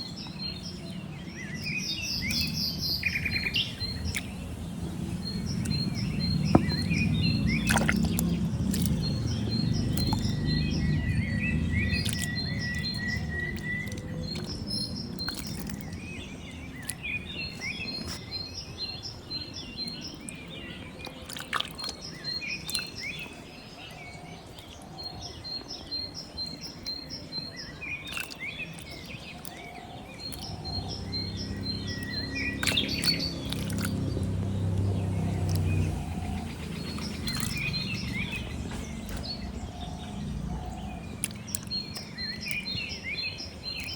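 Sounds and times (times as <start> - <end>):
birds chirping: 0.0 - 43.9
low rumble: 30.3 - 41.3.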